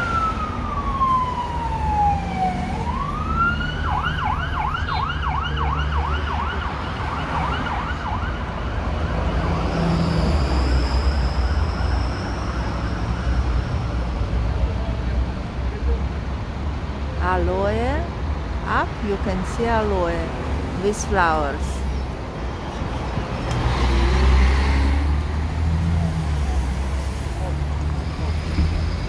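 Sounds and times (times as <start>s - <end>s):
siren wailing and yelping: 0.0s - 8.4s
road traffic rumble: 0.0s - 29.0s.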